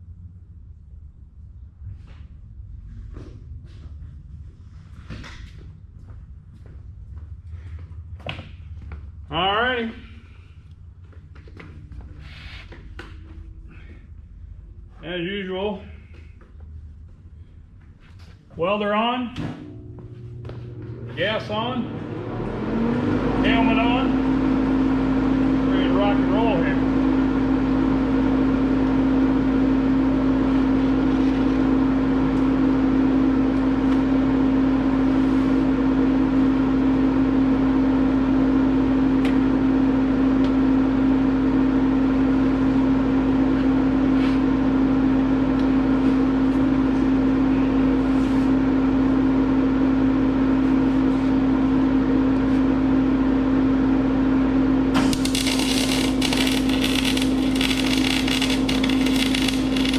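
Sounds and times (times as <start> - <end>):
welding machine humming: 54.9 - 59.9
welding arc crackling: 55.0 - 59.9.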